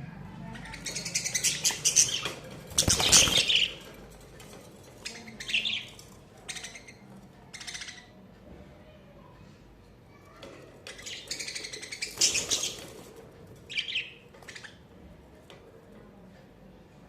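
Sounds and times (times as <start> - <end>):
budgies chirping and chattering: 0.4 - 8.2, 10.7 - 15.0.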